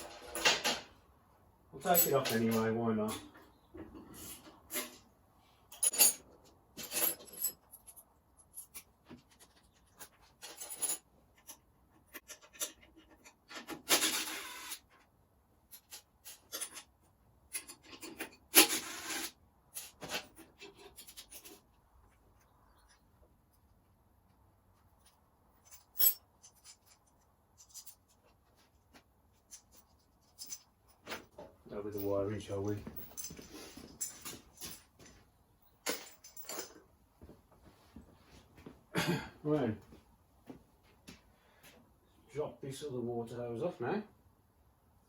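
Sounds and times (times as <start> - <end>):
hand tools clicking and scraping: 15.7 - 23.7, 24.8 - 31.4.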